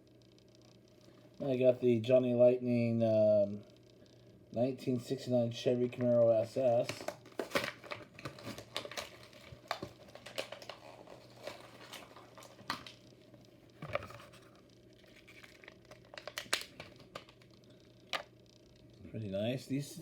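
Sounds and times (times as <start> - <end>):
plastic and card crinkling: 5.7 - 18.3
packaging clicks and snaps: 6.8 - 13.0, 13.7 - 18.3.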